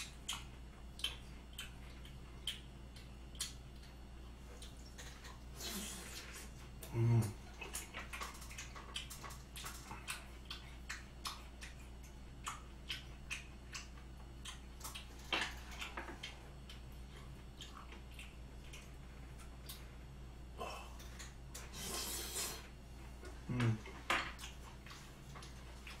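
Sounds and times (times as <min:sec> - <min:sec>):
wet chewing smacks: 0:00.0 - 0:20.1
steady low hum: 0:00.0 - 0:26.0.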